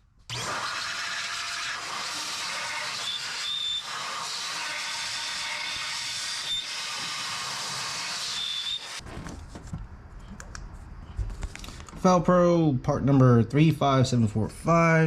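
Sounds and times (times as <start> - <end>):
power tool hissing and scrubbing: 0.3 - 9.0
high squeals: 2.3 - 7.4, 8.1 - 9.0.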